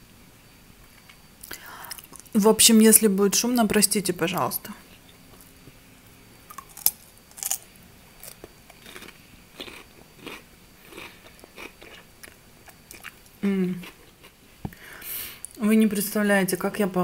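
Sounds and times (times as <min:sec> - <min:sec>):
chewing cucumber crunches: 0:06.5 - 0:14.4.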